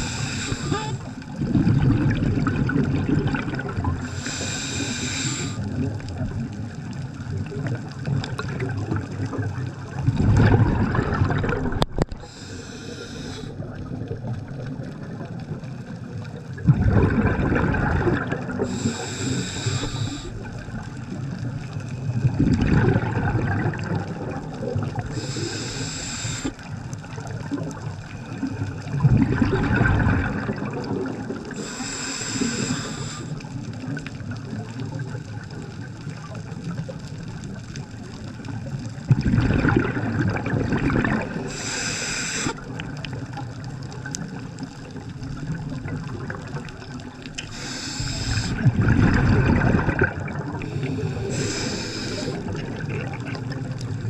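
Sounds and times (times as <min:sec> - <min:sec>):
regulator hissing inhalation: 0:00.0 - 0:01.2, 0:04.0 - 0:05.6, 0:12.2 - 0:13.7, 0:18.6 - 0:20.5, 0:25.1 - 0:26.7, 0:31.6 - 0:33.5, 0:41.4 - 0:42.7, 0:47.4 - 0:48.7, 0:50.6 - 0:52.6
exhaled bubbles: 0:00.0 - 0:54.0.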